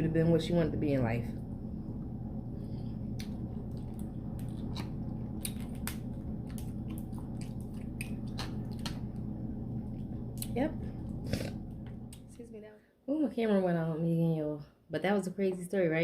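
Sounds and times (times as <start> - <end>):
steady low hum: 0.0 - 14.9
wet chewing and lip smacks: 3.1 - 10.6.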